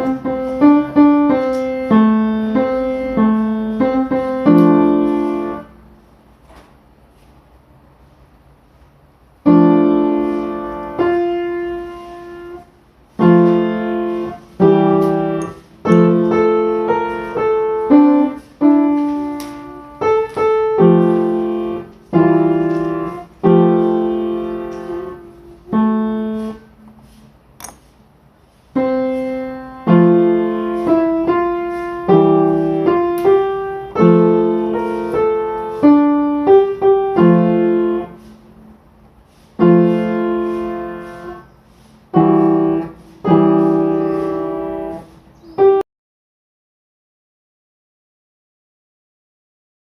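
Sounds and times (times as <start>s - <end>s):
solo piano slow chords: 0.0s - 5.9s, 9.4s - 26.8s, 28.8s - 38.6s, 39.6s - 41.5s, 42.1s - 45.8s.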